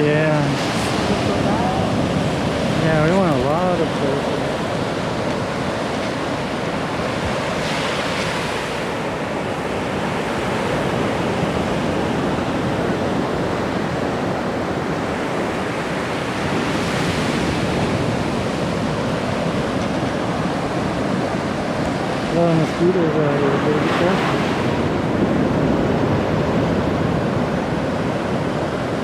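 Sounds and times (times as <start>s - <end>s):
ocean surf rushing: 0.0s - 29.0s
waves breaking: 0.0s - 29.0s.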